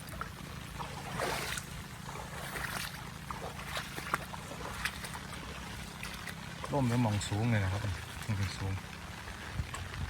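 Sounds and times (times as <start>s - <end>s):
water running: 3.3s - 9.1s
rain falling: 4.4s - 10.0s.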